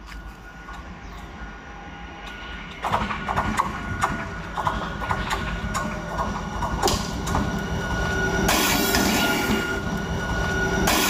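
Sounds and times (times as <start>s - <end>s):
rail and wheel noise: 0.0s - 11.0s
high ringing tone: 7.0s - 11.0s.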